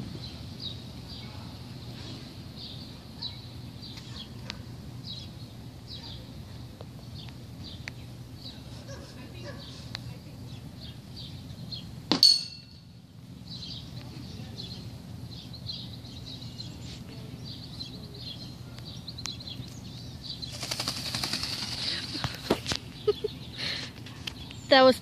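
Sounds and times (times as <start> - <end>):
small birds chirping: 0.0 - 12.0, 12.6 - 25.0
rapid dry rattling: 20.5 - 22.4.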